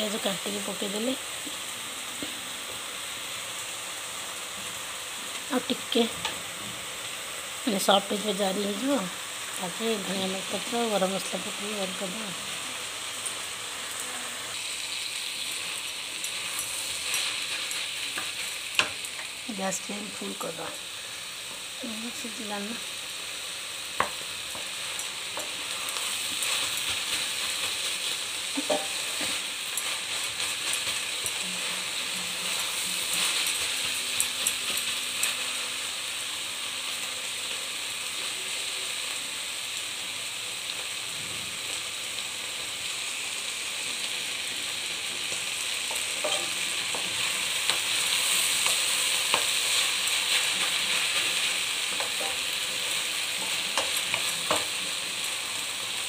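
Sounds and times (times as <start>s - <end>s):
vegetables sizzling in a pan: 0.0s - 56.0s
spatula scraping and tapping pan: 28.6s - 31.4s, 45.3s - 47.9s, 51.9s - 52.4s.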